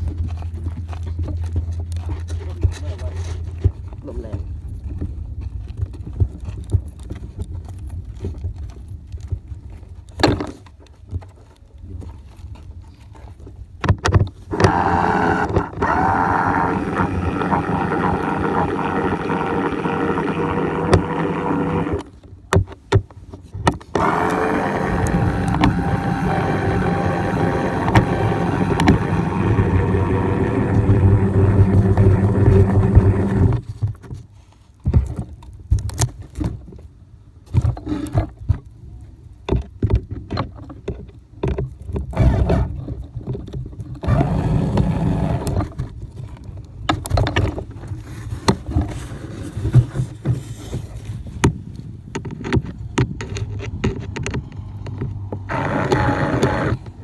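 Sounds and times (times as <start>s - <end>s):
clicks: 14.5s - 22.1s, 23.8s - 33.6s, 52.2s - 57.0s
model plane motor and propeller: 14.5s - 22.3s, 23.7s - 33.9s, 42.0s - 57.0s.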